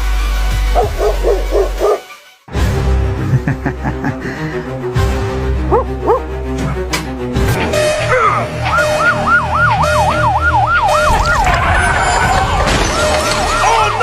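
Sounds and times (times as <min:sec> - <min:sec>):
siren in fast yelp: 0:07.9 - 0:11.2, 0:13.2 - 0:14.0.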